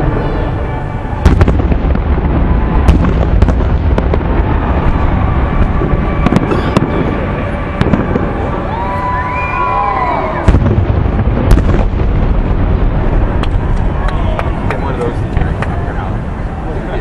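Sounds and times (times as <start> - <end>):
fireworks booming: 0.0 - 17.0
fireworks cracks and pops: 1.2 - 9.6, 10.4 - 16.2.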